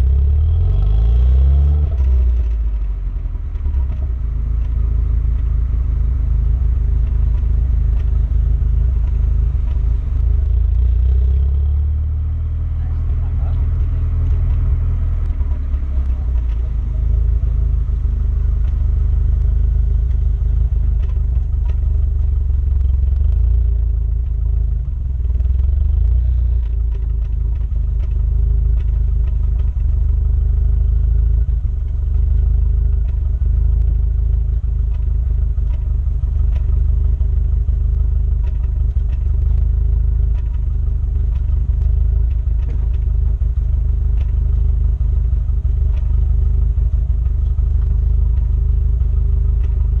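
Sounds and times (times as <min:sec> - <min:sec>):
car engine rumbling: 0:00.0 - 0:50.0
faint light ticks: 0:30.9 - 0:50.0.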